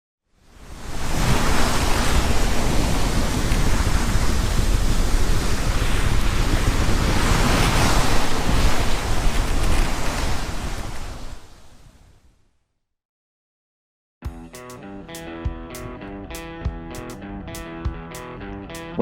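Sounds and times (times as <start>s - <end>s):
rushing water: 0.5s - 11.5s
wind buffeting microphone: 0.6s - 12.1s.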